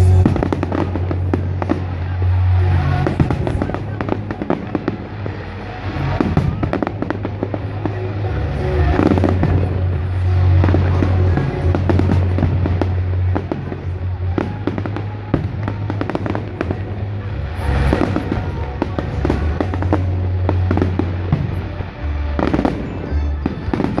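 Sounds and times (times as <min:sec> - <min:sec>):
fireworks bangs and crackles: 0:00.0 - 0:24.0
music with heavy bass: 0:00.0 - 0:24.0.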